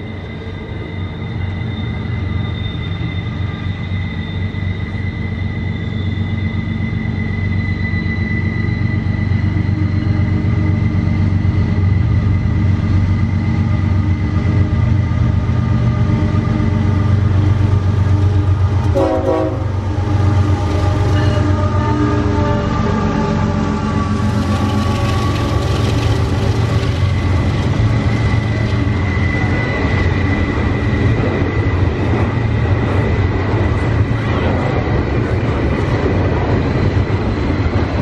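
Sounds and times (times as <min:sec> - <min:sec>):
diesel locomotive engine drone: 0:00.0 - 0:38.0
train horn: 0:18.3 - 0:24.2.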